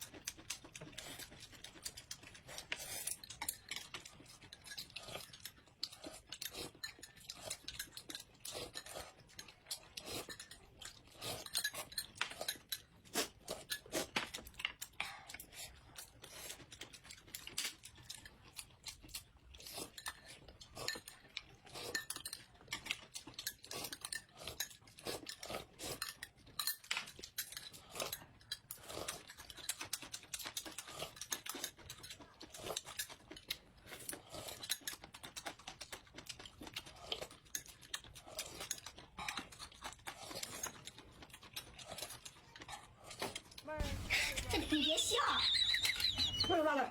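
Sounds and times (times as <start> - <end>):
chewing and crunching: 0.0 - 46.9
utensils clinking against dishes: 19.9 - 29.7.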